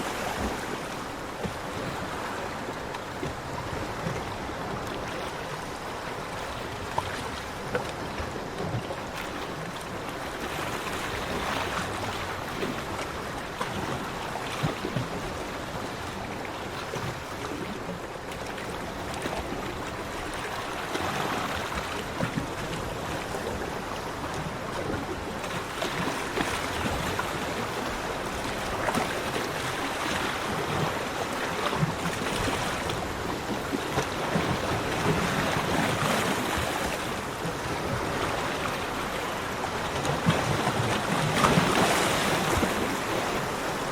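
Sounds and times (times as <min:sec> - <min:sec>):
sea waves breaking on beach: 0:00.0 - 0:43.9.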